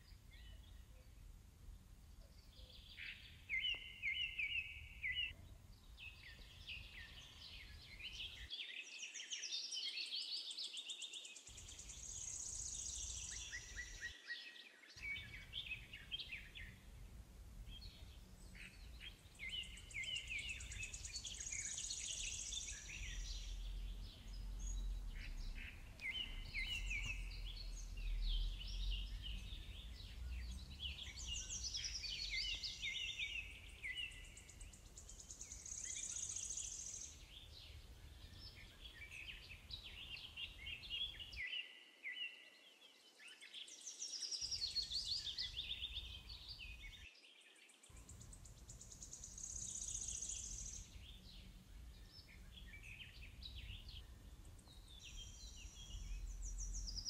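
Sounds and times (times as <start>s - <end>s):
small birds singing: 0.0s - 57.0s
low steady rumble: 15.1s - 21.2s, 22.8s - 31.6s.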